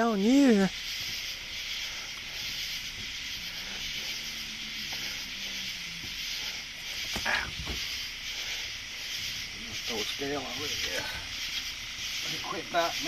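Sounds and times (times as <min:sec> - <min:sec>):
night insects chorus: 0:00.0 - 0:13.0.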